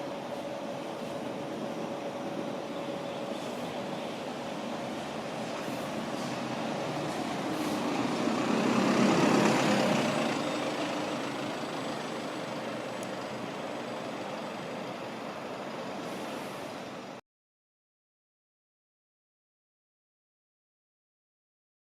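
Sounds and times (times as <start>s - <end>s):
bus driving past: 0.0s - 17.2s.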